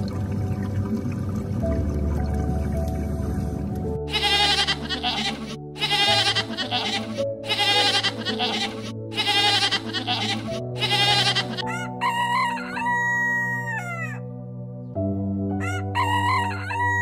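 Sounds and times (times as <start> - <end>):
background music: 0.0 - 17.0
goats bleating: 4.1 - 11.6
rooster crowing: 11.6 - 14.2, 15.6 - 17.0.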